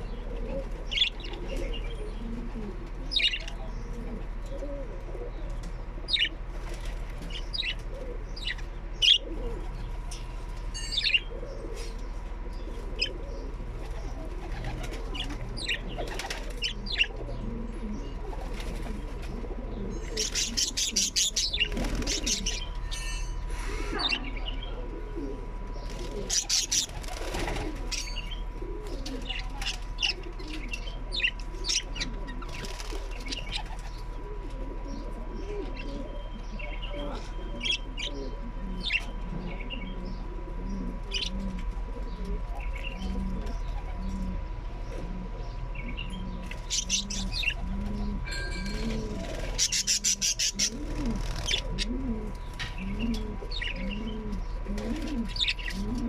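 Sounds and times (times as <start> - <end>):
low cooing: 0.0 - 5.5, 23.9 - 26.6, 34.1 - 56.0
faint hum: 0.0 - 56.0.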